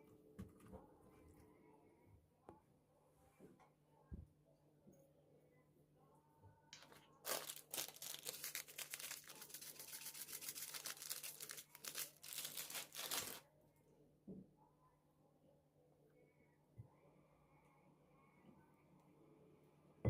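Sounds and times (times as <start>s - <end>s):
thin material crinkling: 6.8s - 13.4s.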